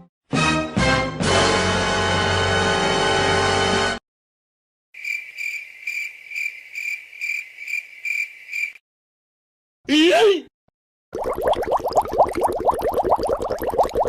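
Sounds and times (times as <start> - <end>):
music clip: 0.0 - 4.0
cricket chirping: 5.0 - 8.8.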